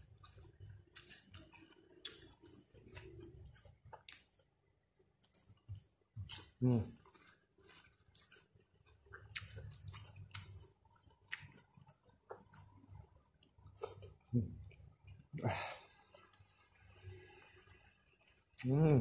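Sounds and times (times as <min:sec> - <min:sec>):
person chewing: 0:00.0 - 0:18.9.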